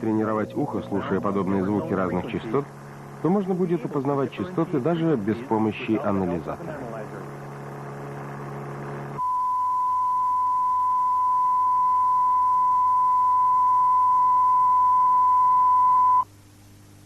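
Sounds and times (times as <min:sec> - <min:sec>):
sine test tone: 0:00.0 - 0:03.7, 0:07.2 - 0:16.8
low hum: 0:00.0 - 0:17.0.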